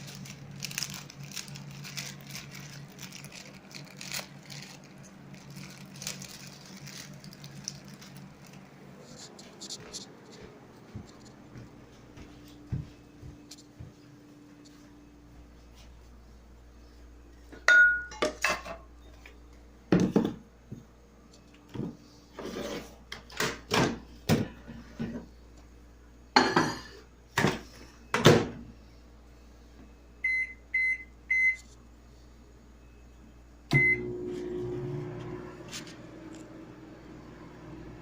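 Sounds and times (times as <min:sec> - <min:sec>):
microwave humming: 0:00.0 - 0:38.0
dishes and utensils clattering: 0:17.6 - 0:18.8, 0:26.4 - 0:27.6
microwave keypad beeping: 0:30.2 - 0:31.6, 0:33.7 - 0:34.2.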